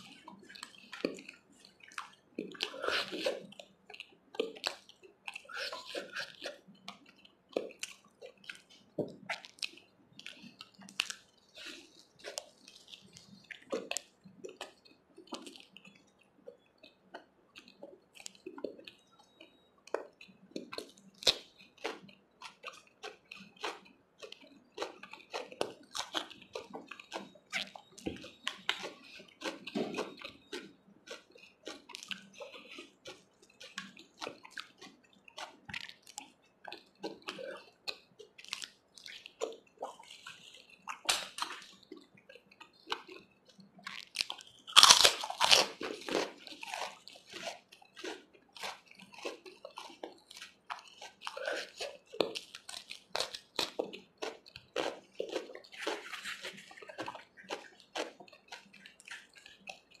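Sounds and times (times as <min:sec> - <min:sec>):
crunchy bite: 0:00.0 - 0:03.7, 0:04.4 - 0:07.0, 0:19.9 - 0:42.0, 0:42.9 - 0:59.9
person chewing food: 0:00.0 - 1:00.0
mouth clicks: 0:00.1 - 0:59.9.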